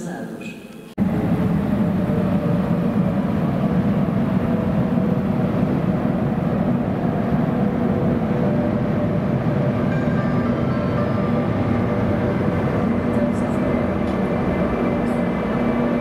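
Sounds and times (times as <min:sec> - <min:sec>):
train rumbling in tunnel: 0:00.0 - 0:16.0.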